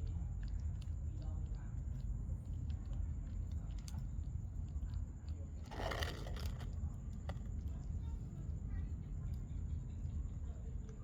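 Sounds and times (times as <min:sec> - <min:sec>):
kittens crunching food: 0:00.0 - 0:07.9.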